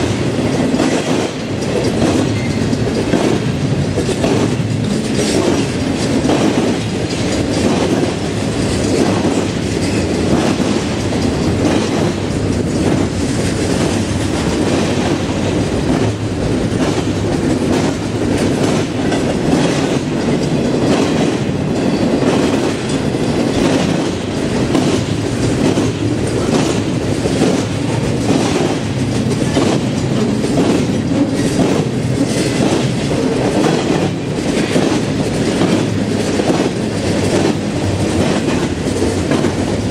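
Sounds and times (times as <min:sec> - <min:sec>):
freight train rolling past: 0:00.0 - 0:39.9
wheels clicking over rail joints: 0:00.1 - 0:39.9.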